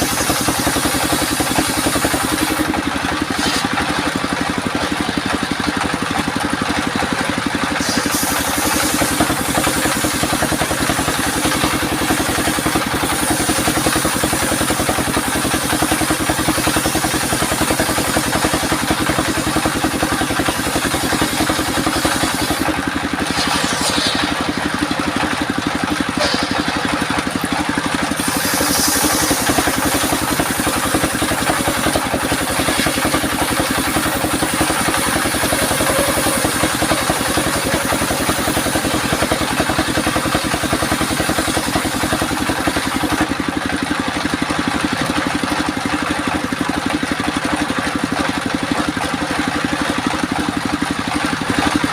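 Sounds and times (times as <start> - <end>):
saw hiss: 0.0 - 3.8, 7.8 - 25.5, 28.1 - 43.2
sawmill machine drone: 0.0 - 51.9.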